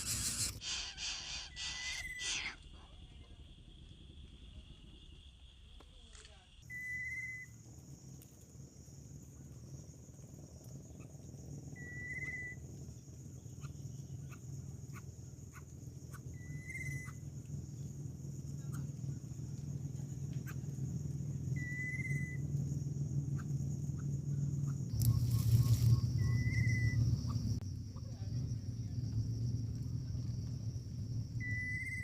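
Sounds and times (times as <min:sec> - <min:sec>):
insect buzzing: 0:00.0 - 0:03.0, 0:09.6 - 0:27.8
low background hum: 0:00.0 - 0:32.0.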